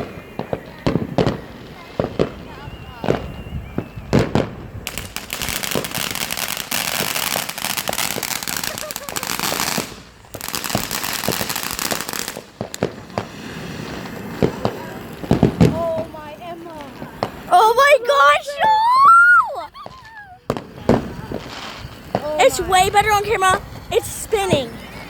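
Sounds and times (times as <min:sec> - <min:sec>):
fireworks crackling and popping: 0:00.0 - 0:25.0.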